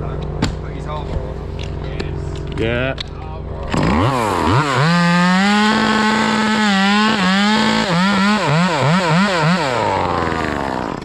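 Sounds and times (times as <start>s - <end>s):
chainsaw running: 3.6s - 11.0s.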